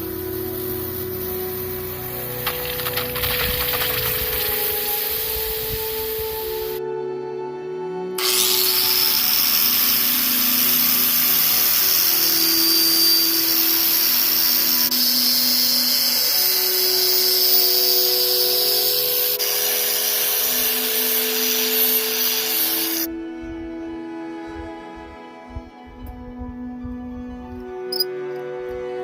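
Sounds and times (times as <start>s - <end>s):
angle grinder grinding steel: 0.0s - 6.8s, 8.2s - 23.1s
background music with held notes: 0.0s - 29.0s.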